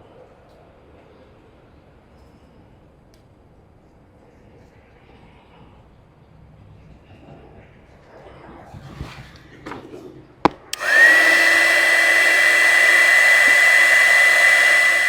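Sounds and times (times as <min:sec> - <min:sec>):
heat gun fan whine: 0:10.6 - 0:15.0
heat gun switch click: 0:10.7 - 0:15.0
rush of hot air: 0:10.7 - 0:15.0.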